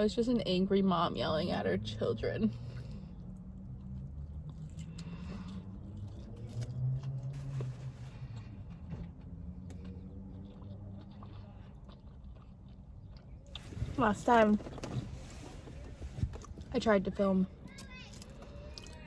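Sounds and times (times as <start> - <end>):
low background hum: 0.0 - 19.0
person chewing food: 2.6 - 13.8, 17.6 - 19.0.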